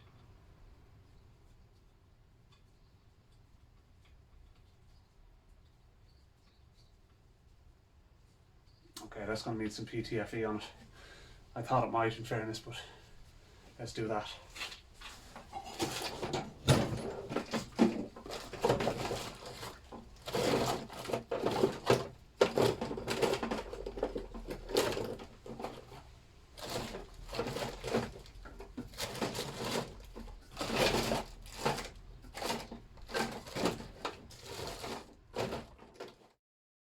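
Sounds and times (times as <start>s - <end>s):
scraping and light clicks: 14.5s - 36.4s
tape rustling: 14.6s - 36.3s.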